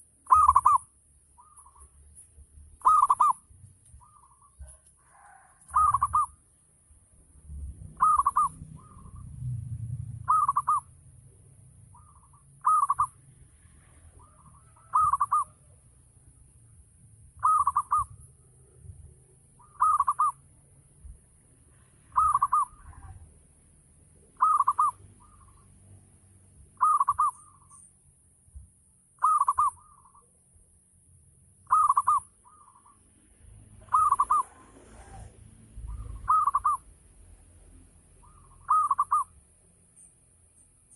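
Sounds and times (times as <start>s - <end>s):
dove cooing: 0.0s - 1.9s, 2.8s - 6.4s, 7.9s - 10.9s, 11.9s - 13.2s, 13.8s - 15.8s, 17.4s - 18.2s, 19.6s - 20.4s, 22.1s - 23.4s, 24.4s - 25.6s, 26.8s - 27.8s, 29.2s - 30.3s, 31.7s - 33.0s, 33.8s - 36.9s, 38.2s - 39.3s.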